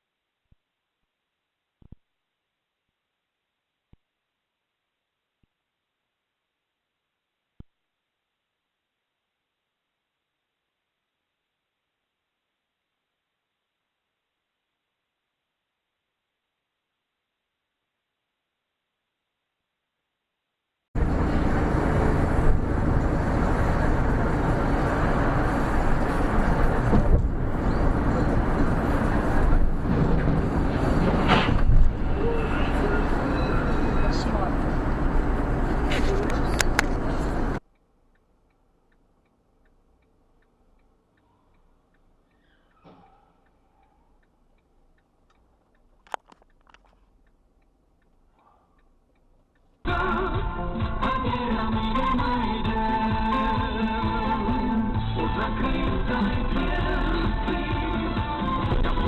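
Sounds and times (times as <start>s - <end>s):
engine and road rumble: 21.0s - 41.2s, 43.8s - 59.0s
turn signal relay ticking: 37.6s - 42.8s, 43.4s - 49.8s
loud music: 49.9s - 59.0s.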